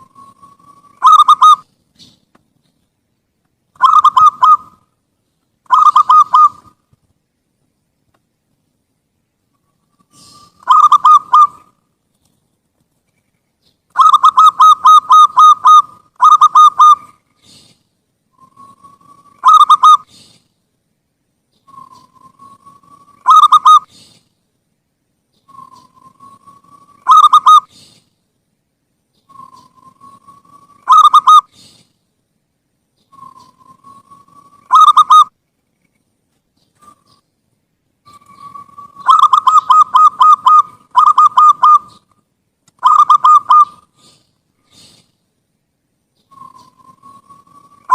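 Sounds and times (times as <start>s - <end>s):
dove cooing: 0.0s - 2.2s, 3.8s - 4.8s, 5.7s - 6.8s, 10.1s - 11.7s, 14.0s - 17.7s, 18.4s - 20.3s, 21.7s - 24.2s, 25.5s - 28.0s, 29.3s - 31.8s, 33.1s - 35.3s, 38.0s - 42.1s, 42.8s - 45.1s.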